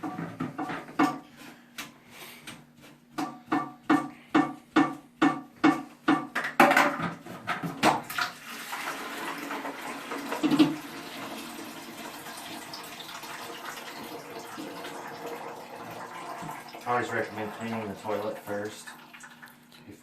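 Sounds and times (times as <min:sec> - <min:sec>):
water running into a bucket: 0:07.8 - 0:20.0.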